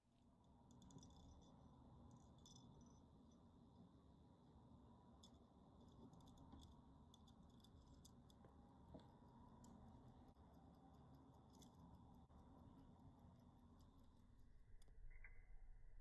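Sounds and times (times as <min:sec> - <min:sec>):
wristwatch ticking: 0:06.2 - 0:14.9.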